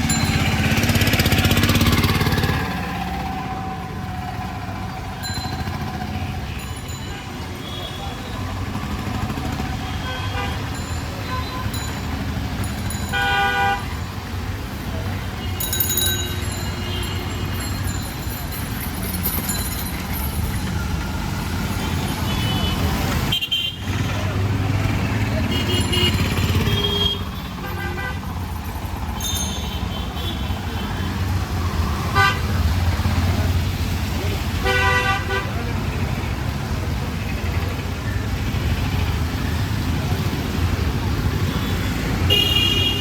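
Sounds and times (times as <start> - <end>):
street traffic engine rumble: 0.0 - 43.0
vehicle horn toot: 42.3 - 43.0.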